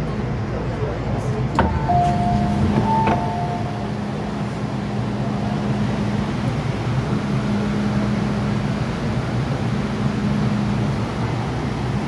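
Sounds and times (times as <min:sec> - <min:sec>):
train running with low hum: 0:00.0 - 0:12.0
two-note electronic tone: 0:01.6 - 0:04.2.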